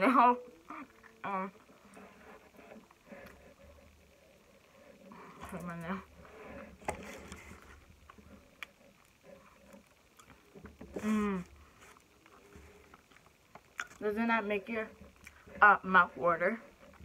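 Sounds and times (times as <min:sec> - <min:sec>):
faint low hum: 0:00.0 - 0:17.0
person humming: 0:10.9 - 0:11.6.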